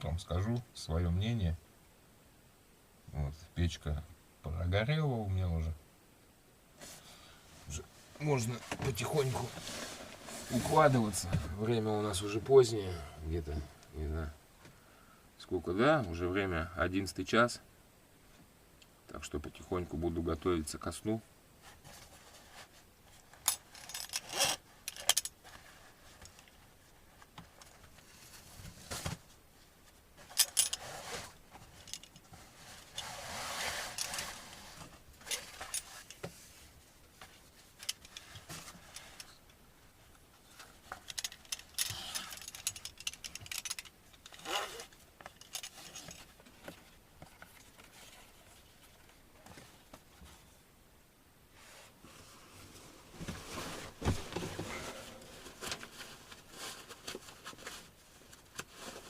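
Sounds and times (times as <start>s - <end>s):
swishing rustle: 7.6s - 11.2s
clicks and knocks of handling things: 21.8s - 29.4s, 30.2s - 33.1s, 37.1s - 50.4s.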